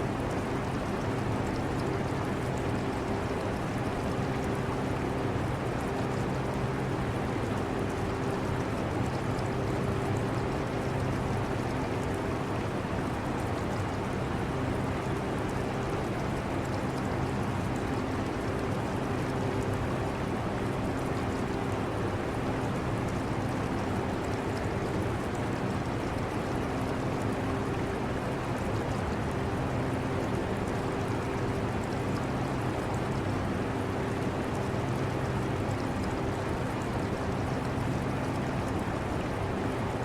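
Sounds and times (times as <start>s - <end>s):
aquarium water trickling: 0.3s - 40.0s.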